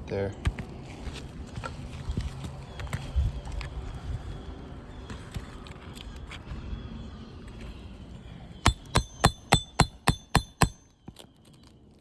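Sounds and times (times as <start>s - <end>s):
hammer striking metal: 8.7s - 10.8s.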